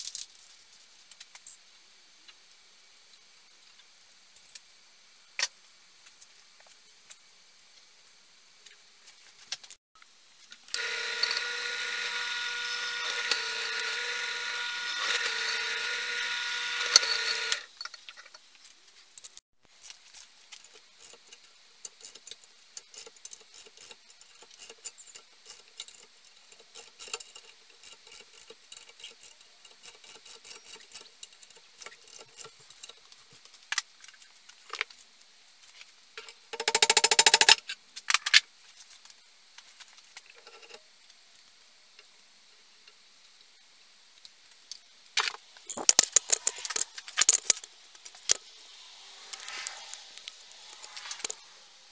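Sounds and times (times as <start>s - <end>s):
electric power tool running: 10.7s - 17.7s
tools being handled clicks: 36.6s - 37.6s, 44.2s - 48.4s.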